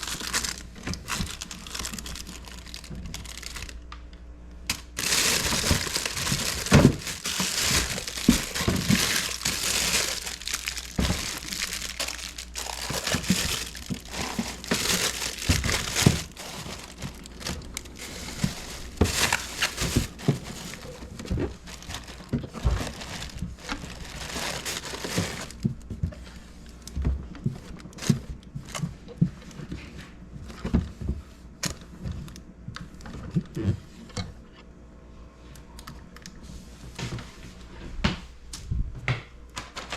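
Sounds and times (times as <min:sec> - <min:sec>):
plastic crinkling and rustling: 0:00.0 - 0:04.0, 0:04.7 - 0:30.9.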